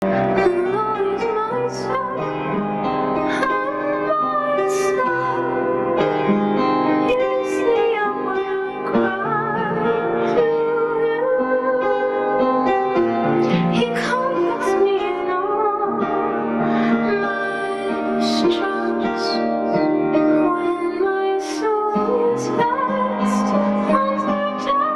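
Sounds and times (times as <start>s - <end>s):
piano accompaniment: 0.0s - 24.9s
woman singing with vibrato: 0.3s - 2.4s, 3.3s - 5.8s, 7.1s - 12.2s, 13.4s - 16.1s, 16.8s - 19.5s, 20.3s - 24.9s.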